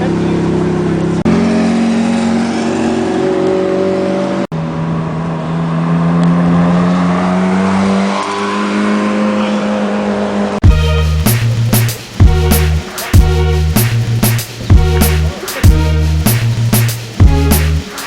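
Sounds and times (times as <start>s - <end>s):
sports car engine running: 10.6s - 18.0s.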